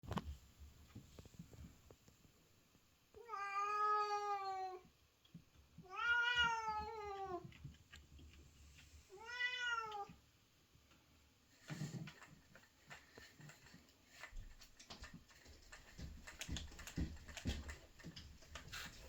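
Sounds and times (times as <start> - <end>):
cat meowing: 3.2 - 4.8, 5.8 - 7.5, 9.1 - 10.2.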